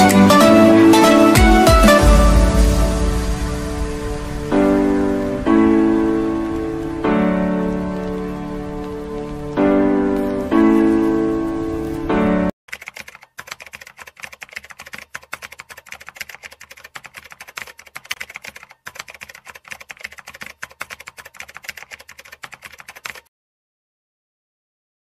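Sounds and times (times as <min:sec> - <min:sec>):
sustained keyboard chords: 0:00.0 - 0:12.5
rapid keystroke clicks: 0:12.7 - 0:23.3.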